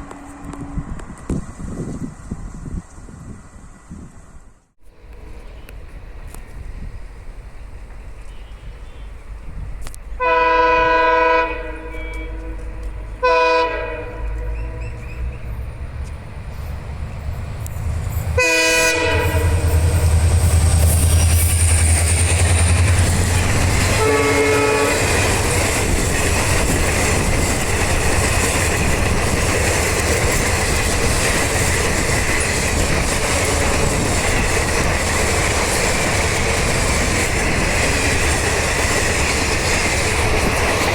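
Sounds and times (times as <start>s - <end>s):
train rumbling past: 0.0s - 40.9s
locomotive horn blasts: 8.2s - 9.2s, 10.2s - 15.1s, 18.4s - 20.0s, 23.8s - 25.3s.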